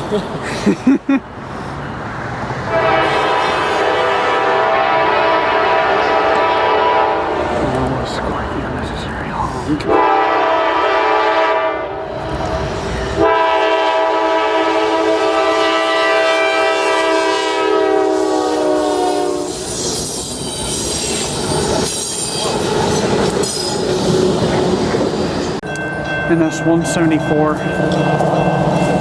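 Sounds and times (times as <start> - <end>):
locomotive air horn: 2.7 - 7.4, 9.9 - 12.1, 13.2 - 19.7
faint wheel squeal: 19.5 - 22.6
train wheels clacking on rails: 19.5 - 29.0.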